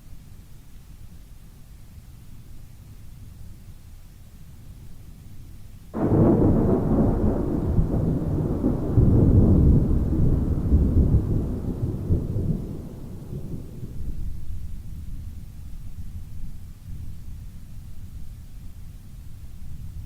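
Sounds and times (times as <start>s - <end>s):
thunder rumbling: 6.0s - 15.2s.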